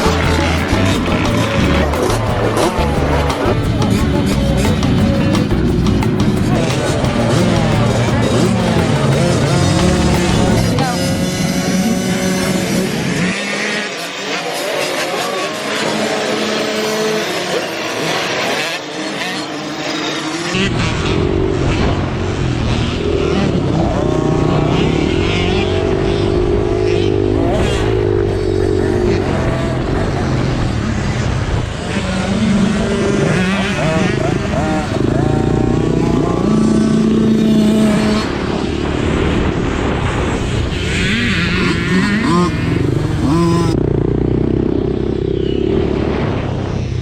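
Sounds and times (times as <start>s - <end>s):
close engine heavy rumble: 0.0s - 12.4s
higher rising buzz: 0.0s - 16.8s, 31.4s - 44.1s
dirt bike engines revving: 0.0s - 47.0s.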